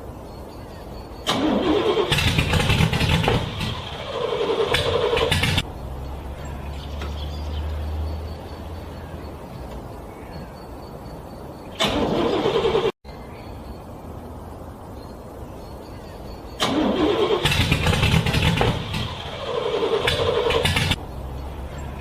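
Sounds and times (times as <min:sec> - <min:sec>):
low engine rumble: 0:00.5 - 0:11.0, 0:11.7 - 0:22.0
car engine cranking: 0:01.2 - 0:06.0, 0:11.8 - 0:13.0, 0:16.6 - 0:22.0.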